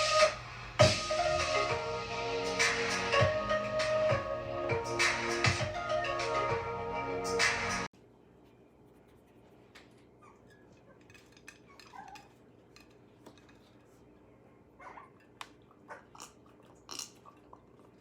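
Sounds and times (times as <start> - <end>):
intro music: 0.0 - 7.9.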